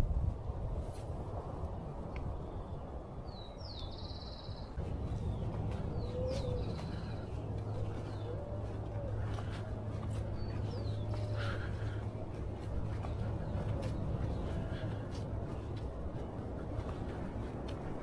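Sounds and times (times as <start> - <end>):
birds chirping and trilling: 3.3 - 14.9
steady low rumble: 4.8 - 18.0.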